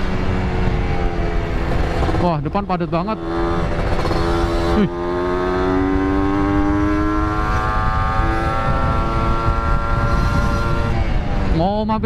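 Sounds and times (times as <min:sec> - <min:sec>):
two-stroke motorcycle engine: 0:00.0 - 0:12.0
wind rumble on microphone: 0:05.4 - 0:12.0.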